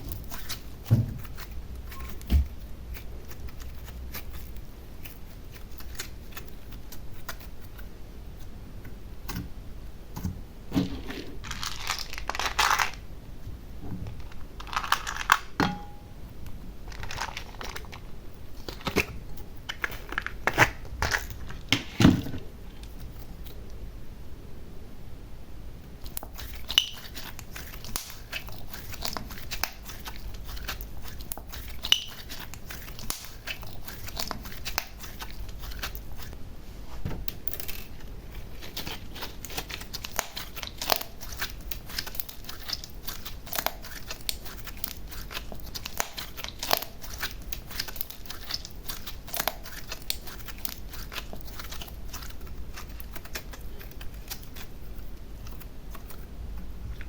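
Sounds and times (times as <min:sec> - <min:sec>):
slime crackling and clicking: 0:38.6 - 0:54.7.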